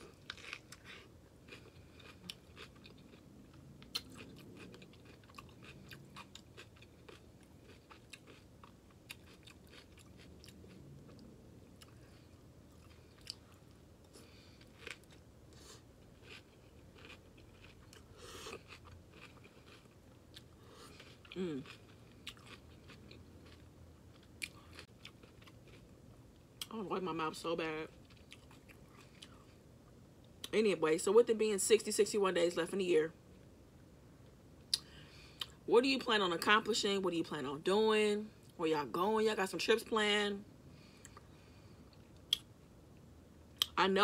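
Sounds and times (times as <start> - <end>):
chewing and crunching: 0.0 - 26.8, 27.8 - 30.6.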